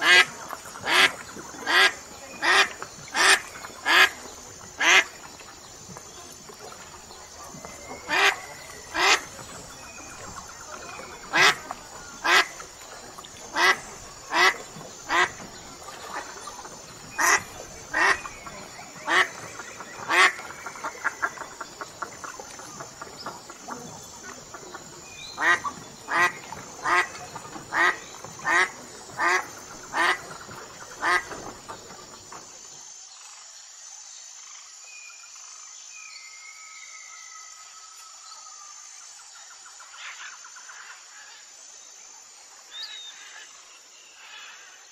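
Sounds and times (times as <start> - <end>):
duck quacking: 17.2 - 18.2, 25.4 - 27.1.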